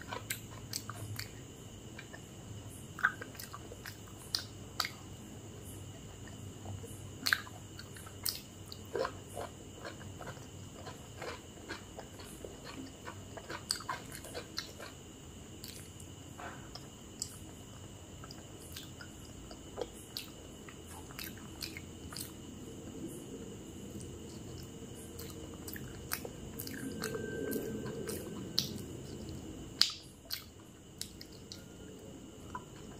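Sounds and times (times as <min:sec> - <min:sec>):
chewing and crunching food: 0:00.0 - 0:32.9
wet mouth clicks: 0:07.2 - 0:07.5.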